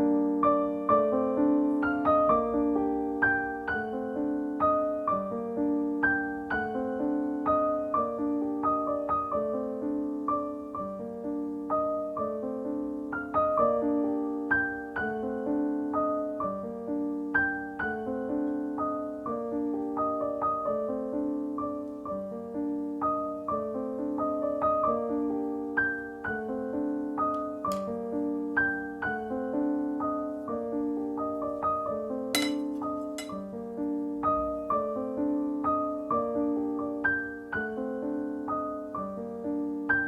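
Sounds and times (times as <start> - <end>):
gentle piano music: 0.0 - 40.0.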